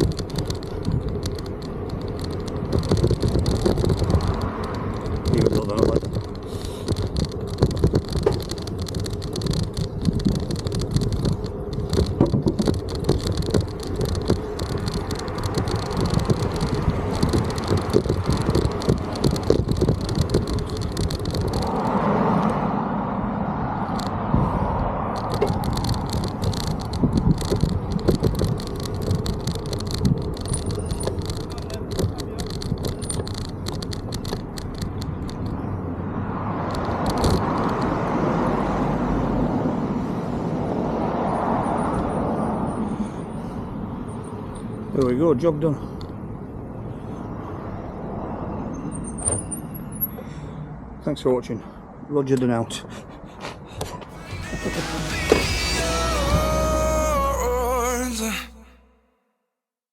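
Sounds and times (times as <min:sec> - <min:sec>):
bike rattling on bumpy path: 0:00.0 - 0:22.6, 0:25.1 - 0:35.8.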